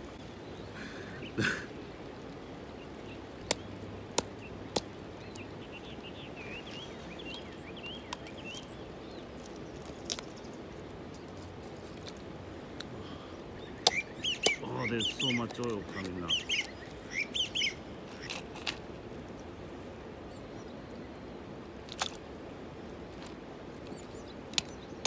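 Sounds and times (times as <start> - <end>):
rain: 0.0 - 25.0
river water: 0.0 - 25.0
small bird chirping: 2.2 - 12.2, 12.8 - 18.5.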